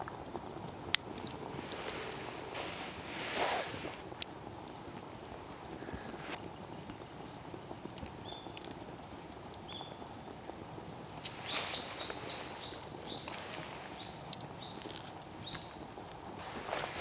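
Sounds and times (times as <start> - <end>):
faint background hiss: 0.0 - 17.0
small bird whistling: 11.2 - 15.7.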